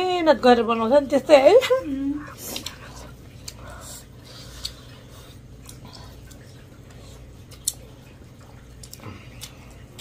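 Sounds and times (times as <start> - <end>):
chewing and smacking: 2.2 - 10.0.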